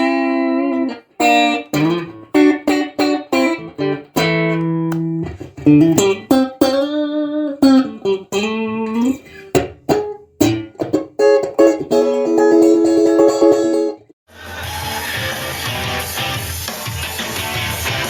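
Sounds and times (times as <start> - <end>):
electric guitar melody: 0.0 - 14.1.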